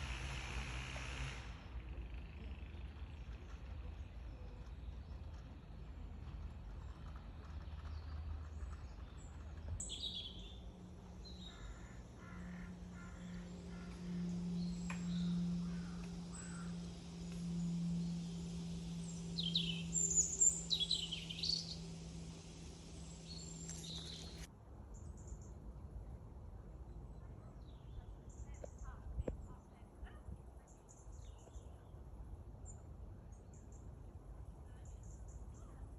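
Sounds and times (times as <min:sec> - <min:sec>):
steady low hum: 0:00.0 - 0:24.5
birds chirping: 0:07.8 - 0:24.5
sweeping bird calls: 0:09.8 - 0:24.5.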